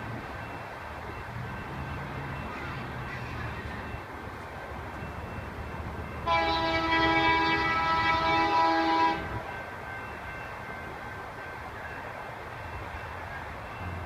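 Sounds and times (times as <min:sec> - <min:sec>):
train rumbling past: 0:00.0 - 0:14.0
train air horn blast: 0:06.2 - 0:09.5.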